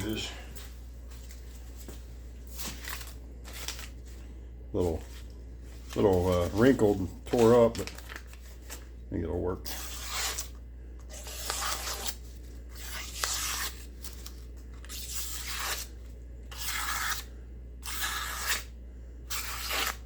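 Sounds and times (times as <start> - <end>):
blade slicing paper: 9.6 - 18.7, 19.3 - 20.0.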